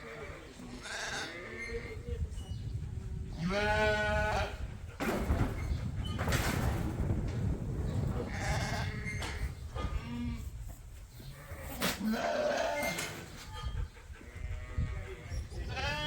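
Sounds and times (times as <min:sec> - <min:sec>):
sheep bleating: 0:14.4 - 0:16.0.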